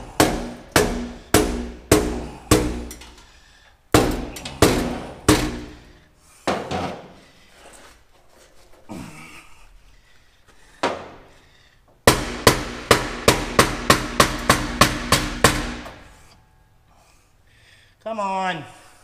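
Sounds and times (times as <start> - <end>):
hammer blows on metal: 0.0 - 3.1.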